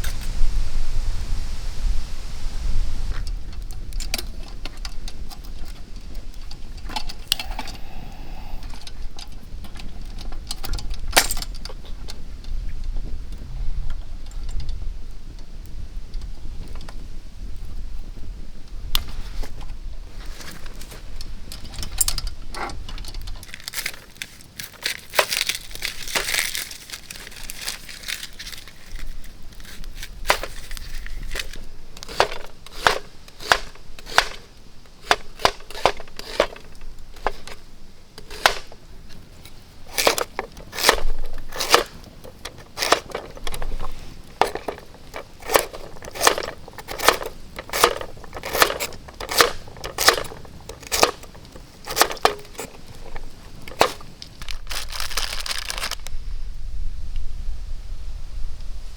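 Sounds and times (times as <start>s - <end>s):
crinkling: 18.9s - 56.2s.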